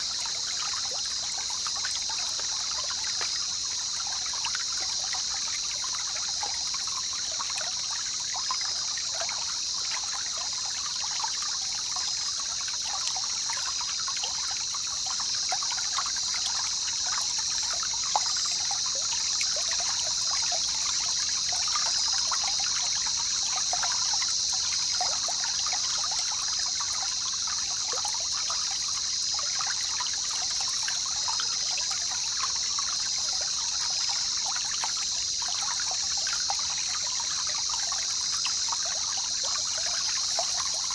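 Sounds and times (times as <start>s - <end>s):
river water babbling: 0.0s - 40.9s.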